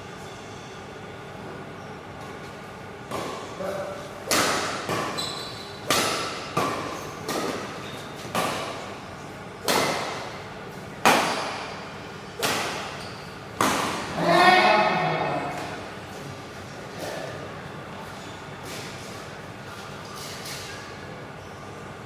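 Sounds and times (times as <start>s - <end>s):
racket hitting shuttlecock: 4.2s - 8.8s, 9.6s - 10.4s, 11.0s - 11.7s, 12.4s - 13.0s, 13.6s - 15.8s
person shouting: 14.2s - 15.8s.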